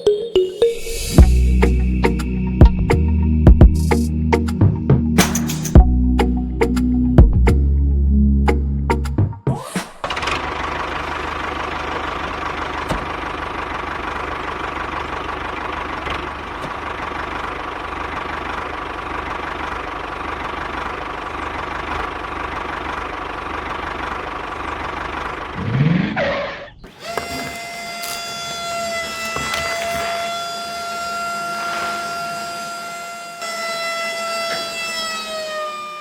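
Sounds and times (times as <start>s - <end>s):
engine running steadily: 10.0s - 33.3s
held horn-like tones: 26.9s - 36.0s.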